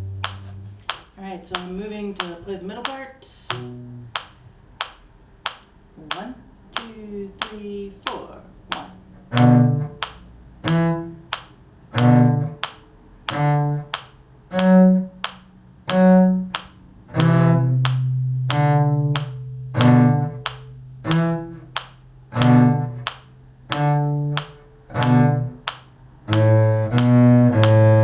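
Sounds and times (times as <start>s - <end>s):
cello bowed notes: 0.0s - 1.0s, 3.5s - 4.2s, 8.7s - 28.0s.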